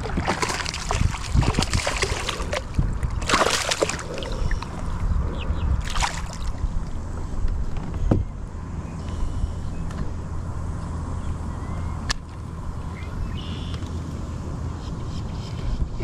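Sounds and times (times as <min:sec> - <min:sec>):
water splashing: 0:00.0 - 0:04.9, 0:05.8 - 0:06.6
water sloshing around kayak: 0:00.0 - 0:07.0
steady low rumble: 0:00.0 - 0:16.0.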